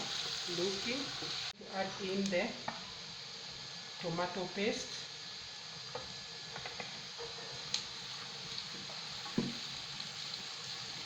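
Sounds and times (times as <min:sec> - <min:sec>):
onions frying in oil: 0:00.0 - 0:11.0.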